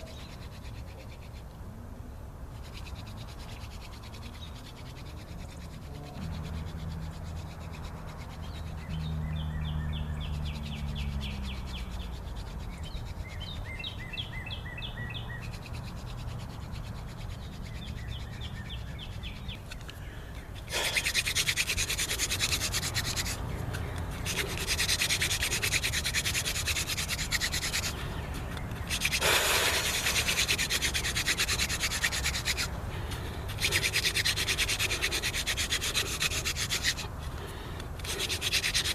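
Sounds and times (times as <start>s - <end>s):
spindle grinding into wood: 20.6s - 32.7s, 33.5s - 38.9s.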